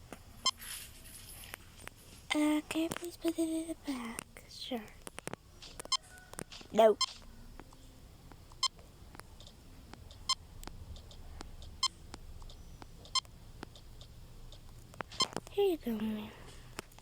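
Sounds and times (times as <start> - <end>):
barcode scanner beeps: 6.8 - 7.3, 9.4 - 10.4, 11.6 - 14.1.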